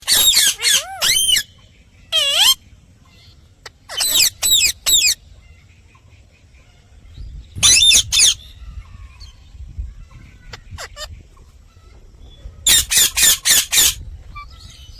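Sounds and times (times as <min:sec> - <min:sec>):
parrot squawking: 0:00.0 - 0:01.5, 0:02.1 - 0:02.6, 0:03.6 - 0:05.2, 0:07.6 - 0:08.4, 0:12.6 - 0:14.0.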